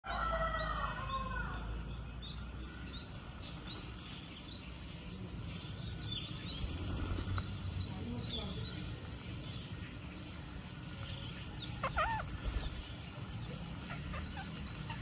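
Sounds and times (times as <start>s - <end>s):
high bird chirps: 11.0s - 15.0s.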